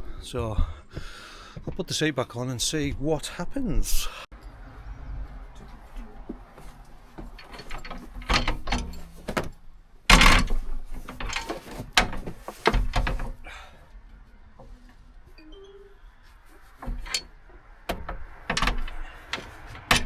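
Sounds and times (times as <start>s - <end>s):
seat clunking and rattling: 5.6s - 13.8s, 16.5s - 20.0s.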